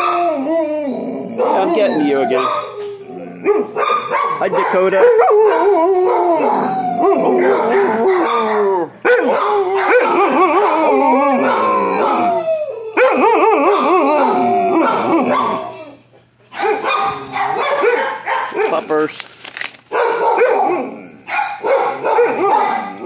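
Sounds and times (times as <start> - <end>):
dogs howling and barking: 0.0 - 19.1, 19.9 - 23.0.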